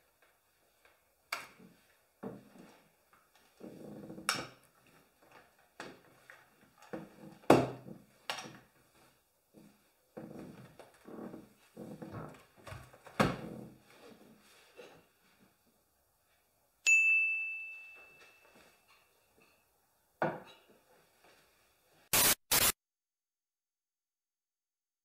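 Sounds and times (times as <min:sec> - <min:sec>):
bright ringing ding: 0:16.9 - 0:18.8
short sharp noise bursts: 0:22.1 - 0:22.8.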